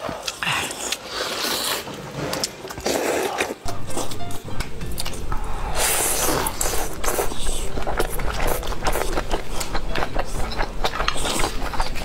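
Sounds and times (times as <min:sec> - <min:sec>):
chewing mouth sounds: 0:02.7 - 0:12.0.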